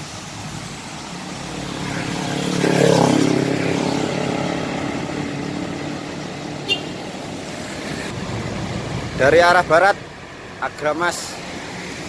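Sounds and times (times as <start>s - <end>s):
bus engine passing by: 0.0s - 12.0s.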